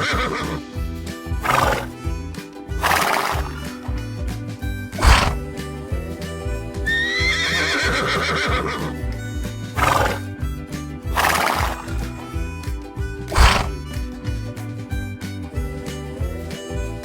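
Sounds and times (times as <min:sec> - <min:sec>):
horse whinnying: 0:00.0 - 0:00.8, 0:01.4 - 0:02.0, 0:02.8 - 0:03.6, 0:05.0 - 0:05.6, 0:06.8 - 0:10.4, 0:11.1 - 0:12.2, 0:13.3 - 0:13.9
music with steady beat: 0:00.0 - 0:17.0.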